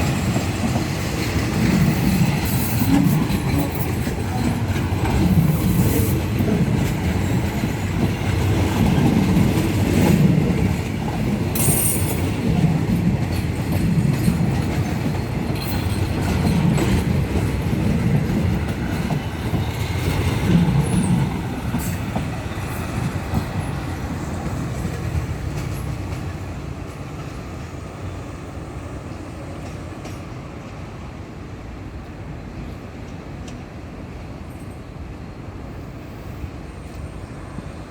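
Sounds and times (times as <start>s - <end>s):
train wheels clattering: 0.0s - 27.4s.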